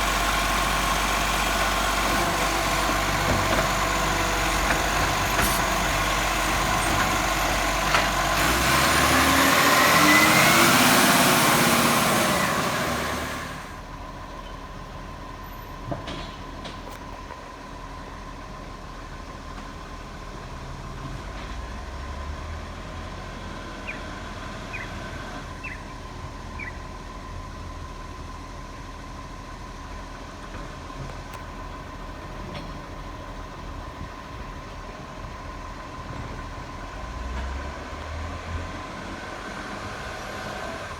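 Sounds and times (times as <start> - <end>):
garbage truck engine revving: 0.0 - 14.1, 31.6 - 40.9.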